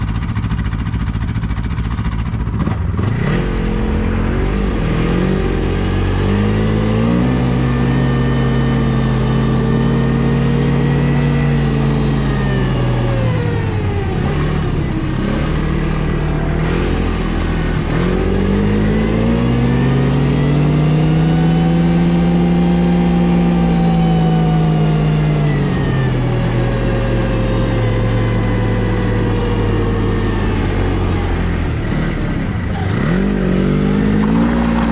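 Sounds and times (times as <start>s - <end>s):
snowmobile engine revving: 0.0s - 34.9s.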